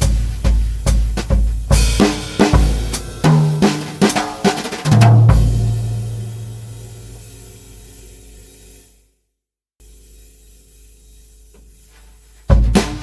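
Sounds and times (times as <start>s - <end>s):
floor tom and bass drum hit: 0.0s - 7.2s, 12.5s - 13.0s
drum kit played with brushes: 0.0s - 7.8s, 12.5s - 13.0s.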